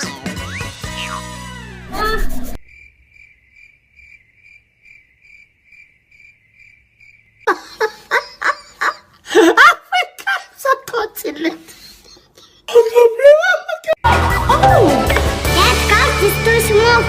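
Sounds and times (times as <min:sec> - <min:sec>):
music: 0:00.0 - 0:01.9, 0:14.0 - 0:17.0
cricket chirping: 0:02.6 - 0:07.5.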